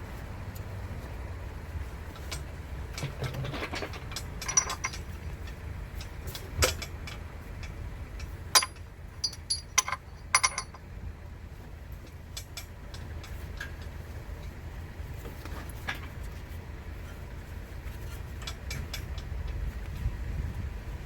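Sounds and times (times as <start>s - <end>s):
metal tools clinking and knocking: 3.0s - 5.2s, 8.5s - 10.8s.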